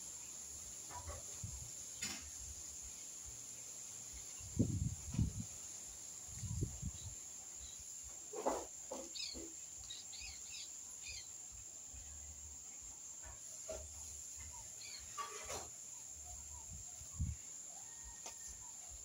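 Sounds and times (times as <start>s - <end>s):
small bird chirping: 8.9s - 11.5s, 14.0s - 17.4s.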